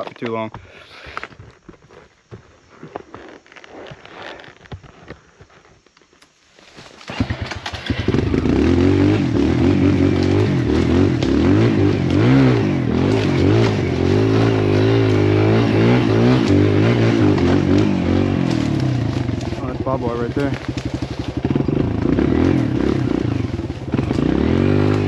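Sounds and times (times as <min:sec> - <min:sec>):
dirt bike engine revving: 0:07.1 - 0:25.0.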